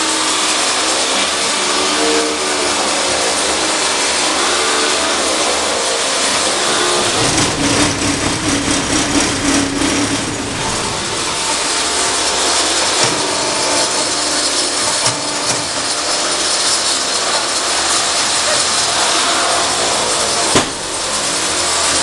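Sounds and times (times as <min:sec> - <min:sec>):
machine mechanical clatter: 0:00.0 - 0:22.0
sharp knocks: 0:07.0 - 0:17.3, 0:20.4 - 0:21.4.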